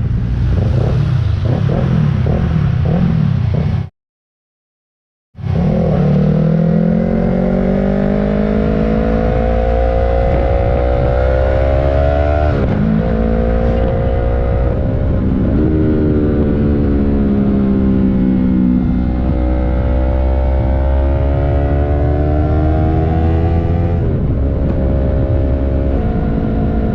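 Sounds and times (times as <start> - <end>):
motorcycle engine accelerating: 0.0 - 3.9, 5.4 - 26.9
wind rush on microphone: 6.6 - 26.9.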